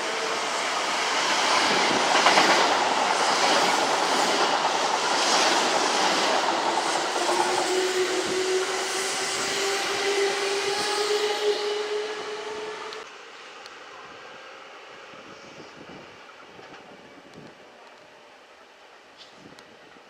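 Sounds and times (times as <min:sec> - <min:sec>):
electric train wheels clattering: 0:00.0 - 0:13.1.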